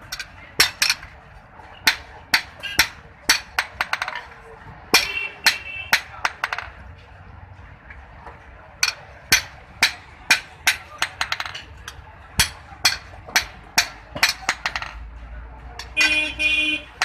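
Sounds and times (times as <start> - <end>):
hammer striking metal on anvil: 4.9 - 6.6.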